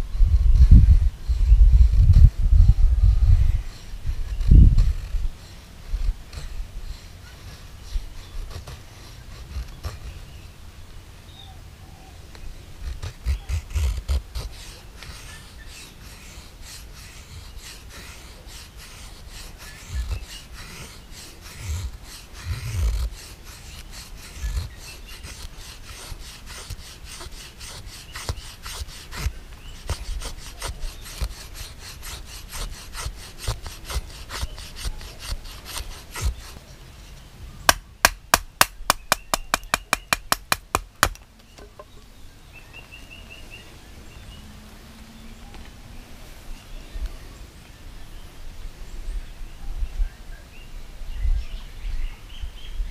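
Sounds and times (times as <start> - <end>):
tool scraping and cutting wood: 3.6 - 10.5, 12.7 - 36.7, 37.7 - 42.0.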